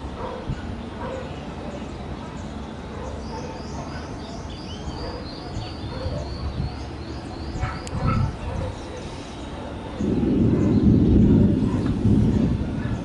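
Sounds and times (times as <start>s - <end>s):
small birds chirping: 0.3s - 13.0s
steady low rumble: 10.0s - 13.0s.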